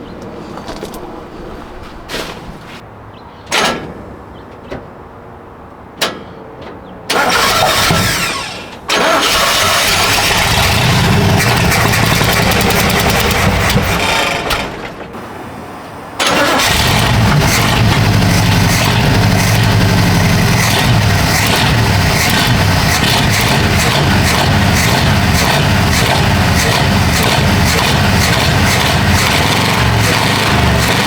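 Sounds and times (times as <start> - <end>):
starter cranking: 7.1 - 15.0, 16.2 - 31.0
engine running loudly: 7.2 - 15.1, 16.2 - 31.0.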